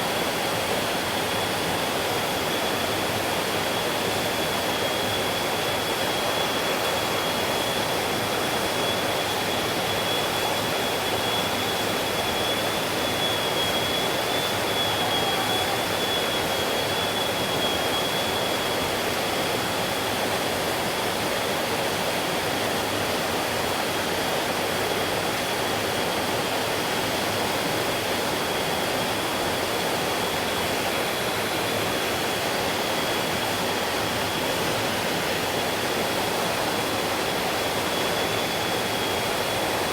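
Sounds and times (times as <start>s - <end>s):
thin high tone: 13.3s - 16.7s.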